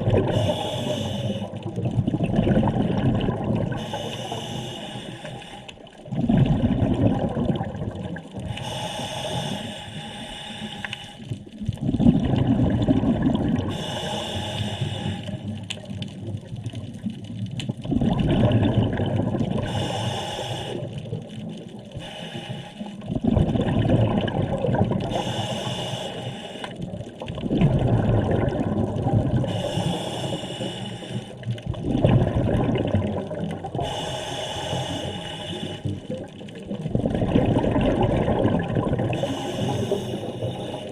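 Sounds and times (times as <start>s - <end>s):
diver breathing through regulator: 0.3s - 1.7s, 3.7s - 5.9s, 8.4s - 11.4s, 13.7s - 15.6s, 19.6s - 21.0s, 22.0s - 23.0s, 25.0s - 26.8s, 29.4s - 31.5s, 33.7s - 36.1s, 39.1s - 40.9s.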